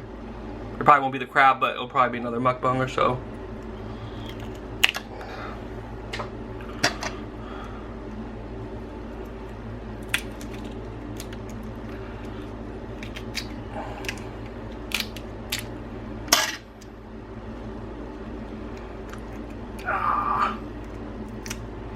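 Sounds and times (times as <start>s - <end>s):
steady low hum: 0.0s - 21.9s
crab shells cracking: 4.1s - 5.1s, 10.0s - 16.9s, 20.8s - 21.8s.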